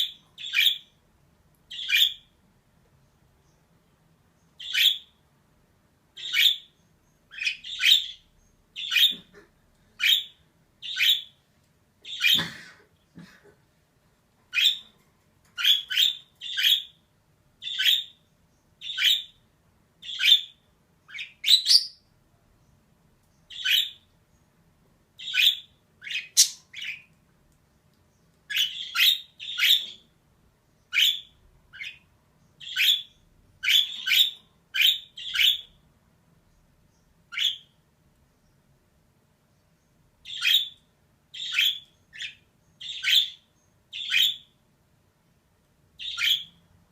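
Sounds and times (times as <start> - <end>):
budgerigar chirping: 0.0 - 1.0, 1.7 - 2.4, 4.6 - 5.2, 6.2 - 9.4, 10.0 - 11.4, 12.1 - 12.5, 14.5 - 14.9, 15.6 - 17.0, 17.6 - 18.2, 18.8 - 19.4, 20.0 - 22.1, 23.5 - 24.0, 25.2 - 27.1, 28.5 - 30.0, 30.9 - 35.8, 37.3 - 37.7, 40.2 - 44.6, 46.0 - 46.6.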